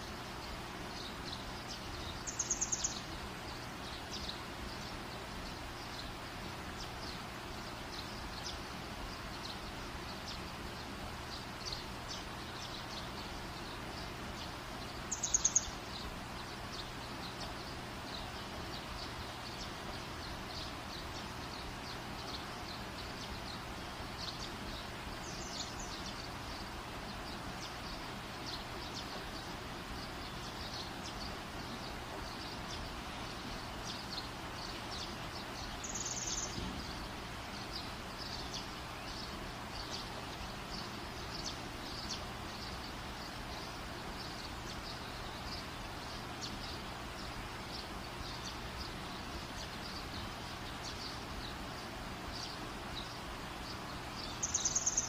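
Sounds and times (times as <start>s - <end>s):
small birds chirping: 0.0s - 55.0s
steady background hiss: 0.0s - 55.0s.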